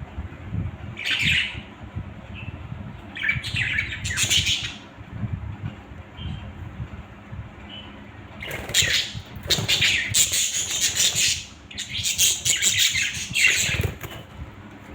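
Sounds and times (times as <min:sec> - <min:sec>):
budgerigars chattering: 0:08.4 - 0:14.1.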